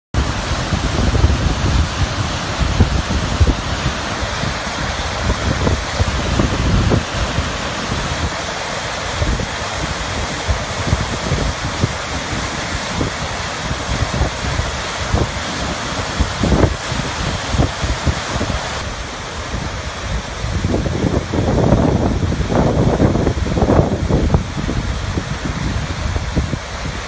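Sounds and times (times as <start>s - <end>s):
wind buffeting microphone: 0.1s - 27.0s
creek rushing in flood: 0.2s - 27.0s.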